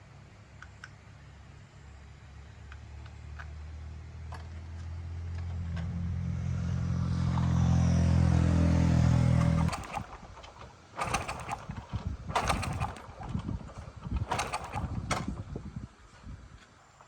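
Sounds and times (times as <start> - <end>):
small motorbike engine idling: 8.5 - 15.6.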